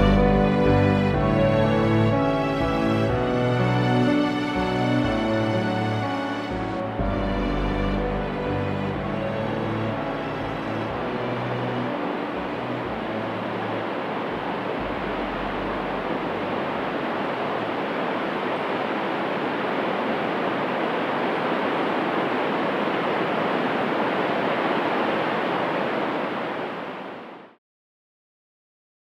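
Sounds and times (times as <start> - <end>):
background music low notes: 0.0 - 18.1
waterfall roaring: 4.1 - 27.6.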